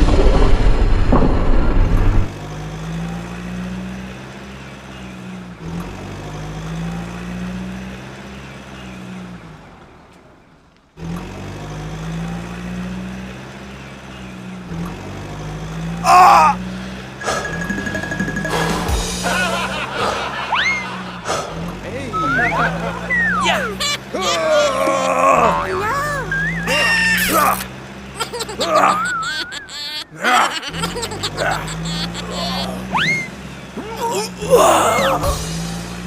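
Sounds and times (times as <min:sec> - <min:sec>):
loud crash: 0:00.0 - 0:02.4
truck engine running: 0:00.0 - 0:36.0.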